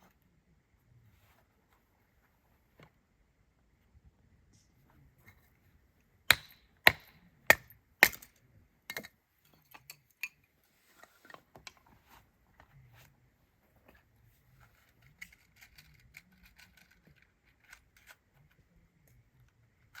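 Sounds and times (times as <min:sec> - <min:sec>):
axe chopping firewood: 0:06.3 - 0:09.1.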